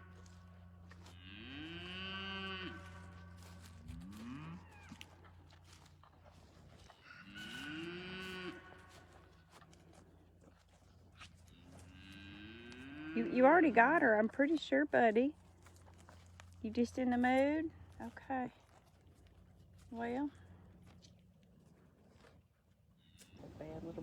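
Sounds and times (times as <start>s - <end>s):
cattle mooing: 1.2s - 5.0s, 7.0s - 9.0s, 11.5s - 13.8s.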